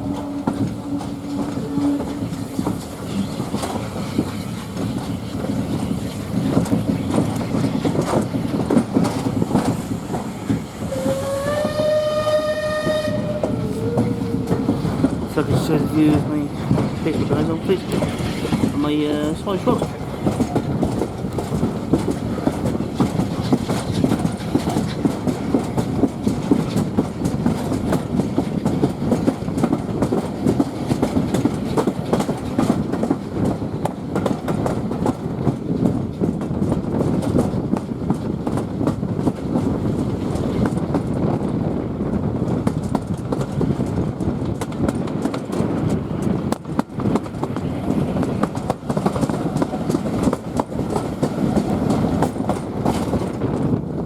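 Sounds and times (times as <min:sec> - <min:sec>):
railway carriage rumbling: 0:00.0 - 0:54.0
wheels clicking over rail joints: 0:00.0 - 0:54.0.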